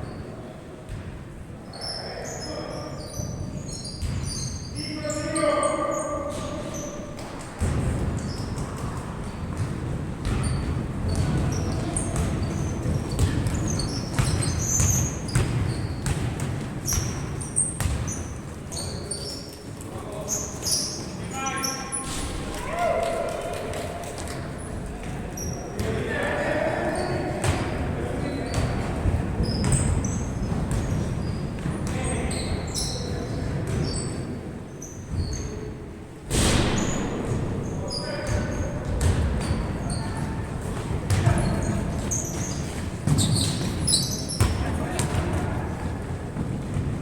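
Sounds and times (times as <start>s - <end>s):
sneakers squeaking on court: 1.7s - 22.3s, 24.2s - 25.9s, 26.9s - 35.8s, 36.6s - 47.0s
ball bouncing: 7.2s - 18.3s, 38.3s - 39.8s.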